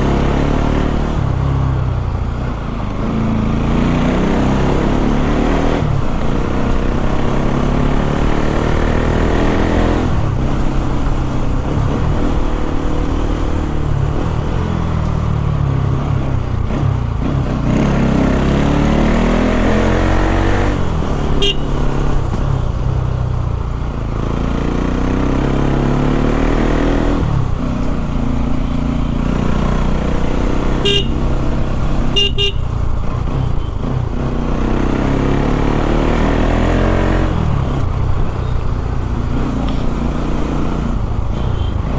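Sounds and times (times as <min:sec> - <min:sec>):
motorcycle engine revving: 0:00.0 - 0:41.9
short horn beeps: 0:21.4 - 0:21.8, 0:30.8 - 0:31.2, 0:32.1 - 0:32.6.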